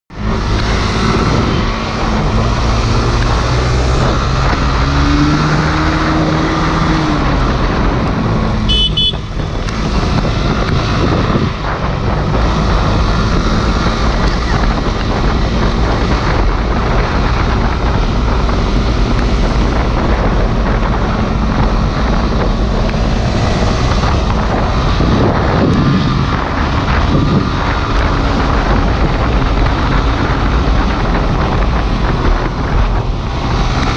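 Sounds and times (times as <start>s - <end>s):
wind noise on microphone: 0.1s - 33.9s
high beep: 8.7s - 9.3s.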